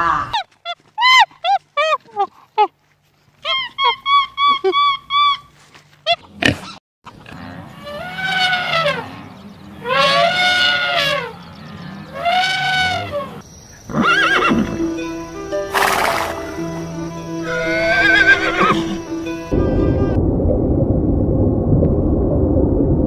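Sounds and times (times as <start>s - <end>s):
animal calls rising and falling: 7.8s - 14.8s, 15.7s - 19.1s.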